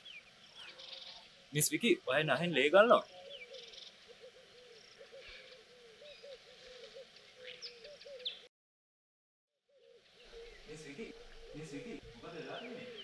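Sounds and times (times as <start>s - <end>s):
faint low bird call: 9.7s - 13.0s.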